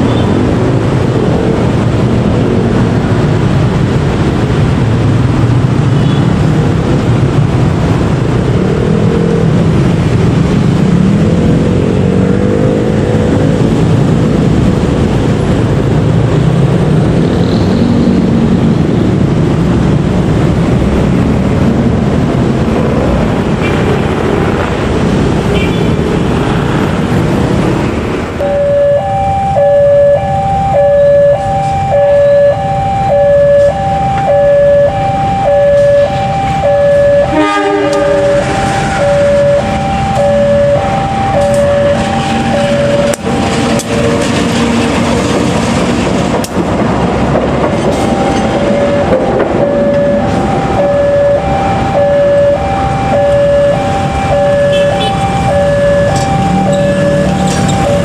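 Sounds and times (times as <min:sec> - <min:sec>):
level-crossing warning alarm: 0:28.4 - 0:45.3, 0:47.7 - 0:58.0
train wheels rumbling on rails: 0:37.5 - 0:52.0.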